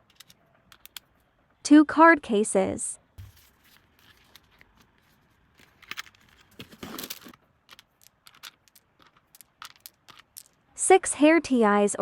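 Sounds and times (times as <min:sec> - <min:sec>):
small item clicks: 0:00.0 - 0:01.1
plastic packaging crinkling: 0:03.2 - 0:10.5.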